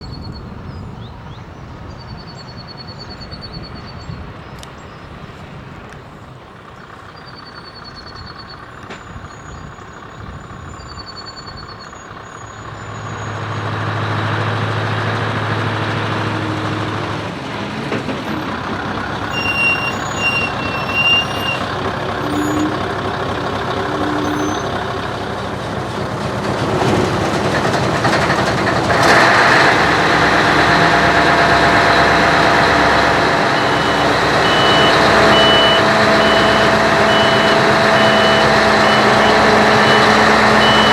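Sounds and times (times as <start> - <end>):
heavy truck engine running: 2.0 - 40.9
reversing beeps: 19.3 - 22.8, 33.4 - 40.9.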